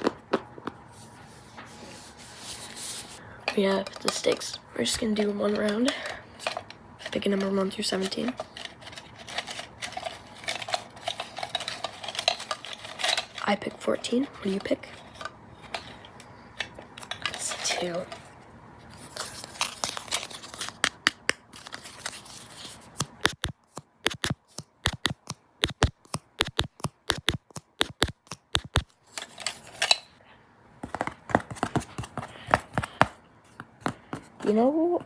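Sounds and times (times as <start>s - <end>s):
scratchy rustling: 1.0s - 3.2s, 6.4s - 16.0s.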